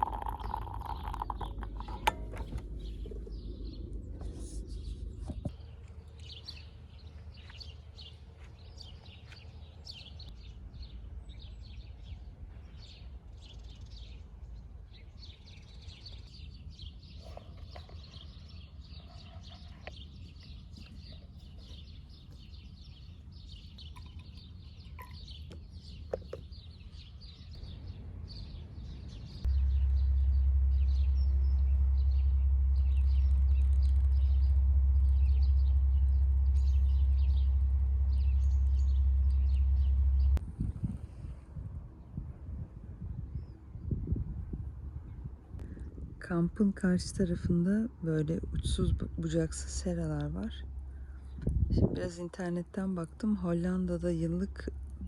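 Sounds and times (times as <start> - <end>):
low rumble: 0.0 - 6.0, 27.3 - 46.4
small birds chirping: 0.0 - 41.2.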